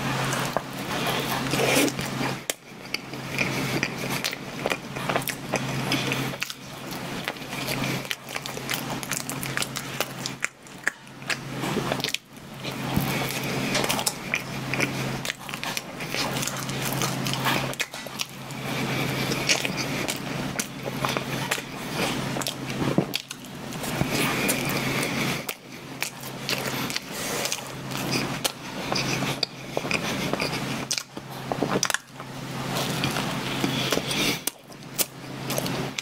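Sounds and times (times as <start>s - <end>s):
biting and chewing: 0.0s - 36.0s
steady low hum: 0.0s - 36.0s.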